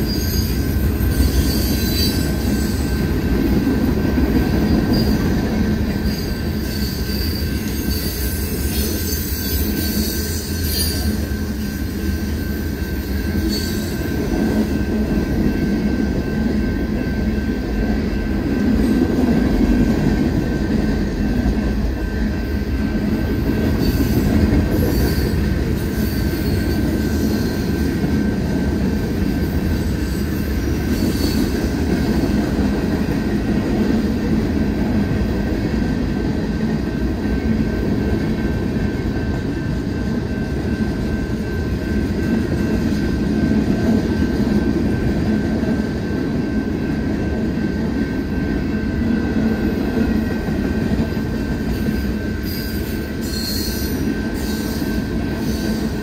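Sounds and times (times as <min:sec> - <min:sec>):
high-pitched wheel squeals: 0:00.0 - 0:03.1, 0:05.9 - 0:14.3, 0:29.8 - 0:32.3, 0:51.7 - 0:56.0
freight train wheels rumbling: 0:00.0 - 0:56.0.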